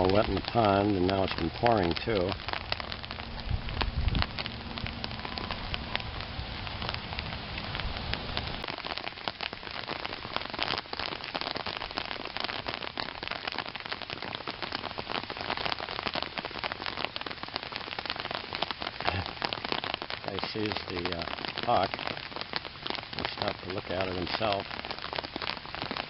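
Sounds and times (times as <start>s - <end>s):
heavy rain pouring: 0.0s - 26.0s
low rumble: 2.7s - 8.6s.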